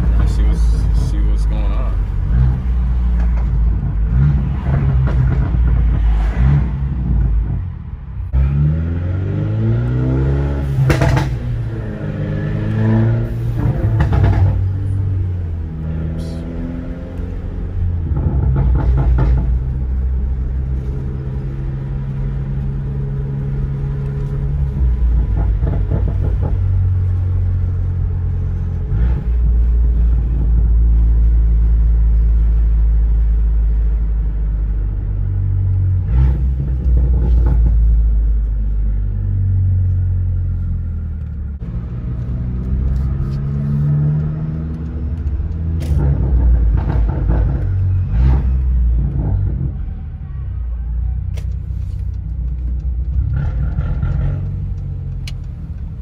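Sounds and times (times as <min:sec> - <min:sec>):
car engine: 0:00.0 - 0:56.0
road rumble: 0:00.0 - 0:56.0.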